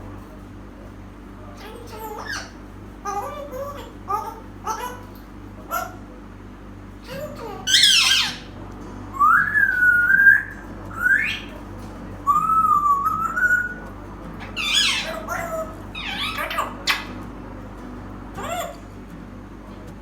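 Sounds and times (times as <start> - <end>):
parrot whistling and squawking: 1.6 - 6.0, 7.0 - 17.3, 18.4 - 18.9.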